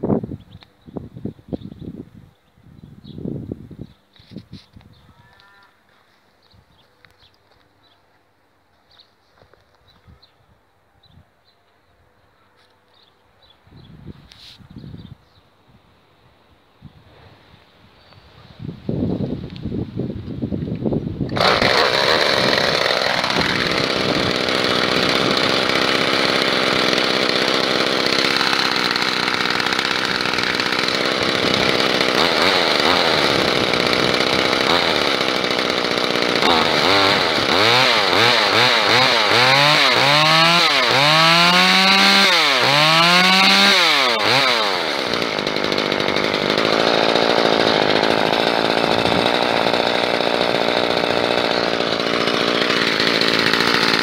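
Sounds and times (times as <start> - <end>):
small engine running and revving: 21.3 - 54.0.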